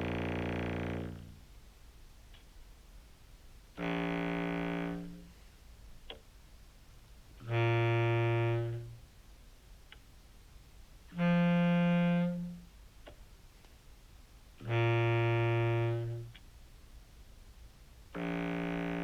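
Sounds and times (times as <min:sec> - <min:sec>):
sustained low clarinet notes: 0:00.0 - 0:01.4, 0:03.8 - 0:05.3, 0:07.4 - 0:09.0, 0:11.1 - 0:12.7, 0:14.6 - 0:16.4, 0:18.1 - 0:19.0.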